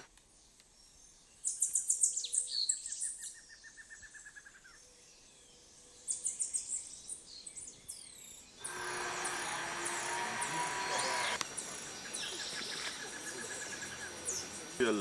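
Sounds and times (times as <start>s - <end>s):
birds chirping and calling: 5.9s - 15.0s.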